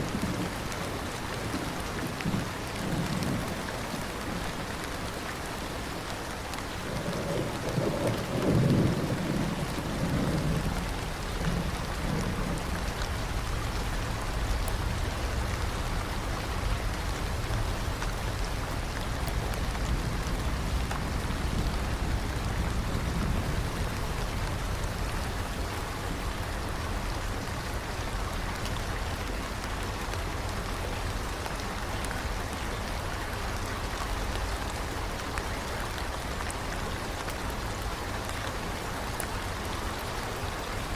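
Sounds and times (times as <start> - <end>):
heavy rain: 0.0 - 40.9
thunder rolling: 6.9 - 27.0.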